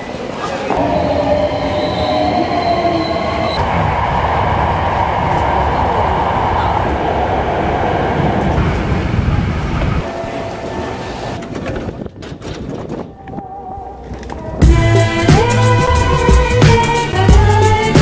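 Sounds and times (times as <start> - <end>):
train running: 0.0 - 13.3
high whine of held tones: 0.8 - 4.4.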